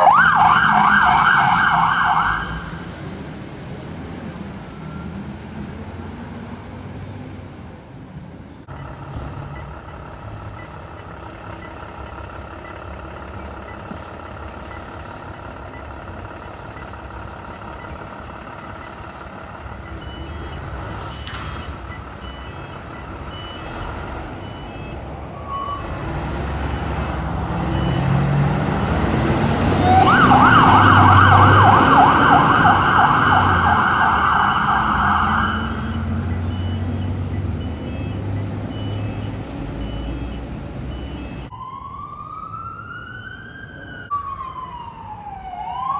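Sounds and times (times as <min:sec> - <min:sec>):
siren warbling: 0:00.0 - 0:02.9, 0:24.0 - 0:36.9, 0:41.5 - 0:45.9
fire truck diesel engine: 0:00.0 - 0:45.9.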